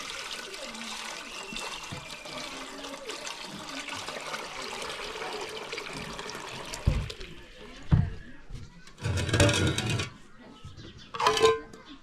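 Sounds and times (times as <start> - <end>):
water running and splashing: 0.0 - 7.9.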